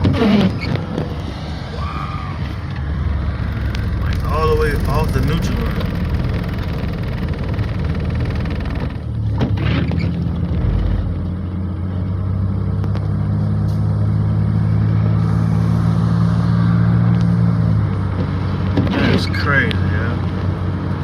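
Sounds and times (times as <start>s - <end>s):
car engine droning: 0.0s - 21.0s
road noise: 0.0s - 21.0s.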